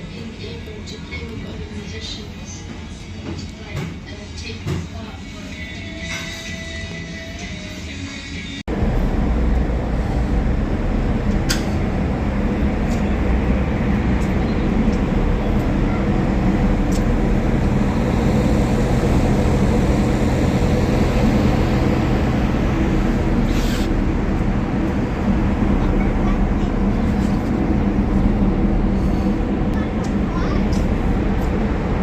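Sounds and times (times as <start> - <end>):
vehicle engine rumble: 8.6 - 32.0.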